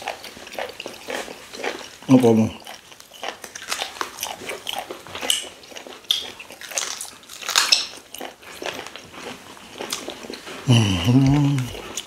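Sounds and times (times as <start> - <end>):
wet chewing: 0.0 - 12.0
lip smacking: 2.6 - 12.0.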